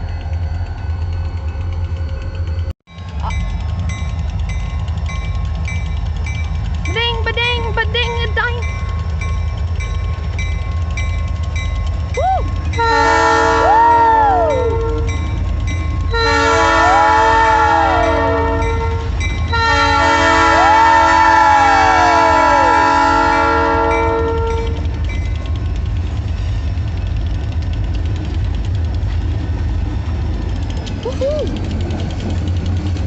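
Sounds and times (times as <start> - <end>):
locomotive engine rumble: 0.0 - 33.0
locomotive air horn blasts: 12.8 - 15.2, 16.1 - 24.9.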